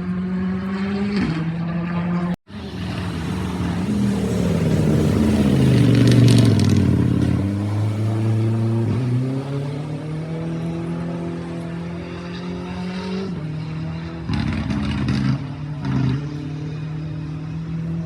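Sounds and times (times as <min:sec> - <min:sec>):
rally car engine passing: 0:00.0 - 0:18.0.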